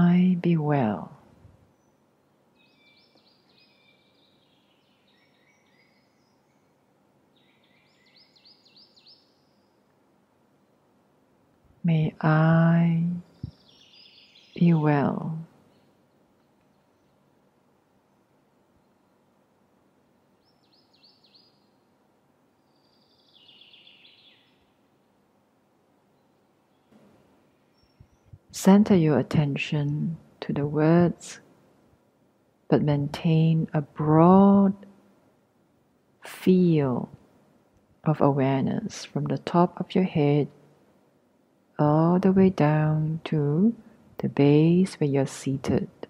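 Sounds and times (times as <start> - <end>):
background hiss: 0.0 - 46.0
faint birdsong: 0.0 - 46.0
small bird chirps: 1.7 - 9.9, 13.2 - 14.9, 20.4 - 21.9, 22.6 - 24.8, 27.6 - 28.4.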